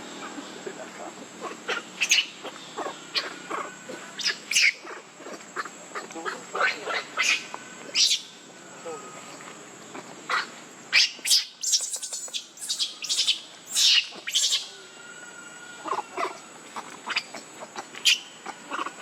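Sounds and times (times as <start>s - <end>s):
baby monkeys squealing: 1.4s - 8.3s, 10.3s - 14.8s, 15.8s - 19.0s.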